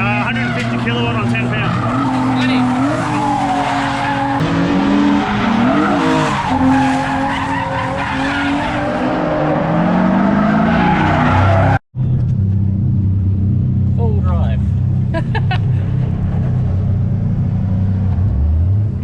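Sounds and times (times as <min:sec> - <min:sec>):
tyres skidding: 0:00.0 - 0:12.7
car engine revving: 0:00.0 - 0:19.0
low engine hum: 0:12.0 - 0:19.0.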